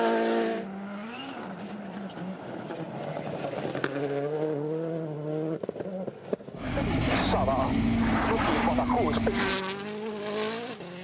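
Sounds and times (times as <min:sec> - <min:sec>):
rally car engine passing: 0:00.0 - 0:11.0
steady engine note: 0:06.6 - 0:09.6.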